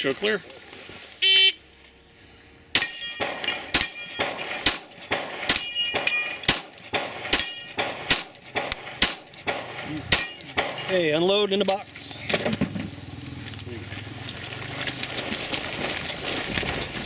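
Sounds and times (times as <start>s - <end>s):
steel targets clanging: 2.7s - 12.6s
gunshots: 2.8s - 11.2s.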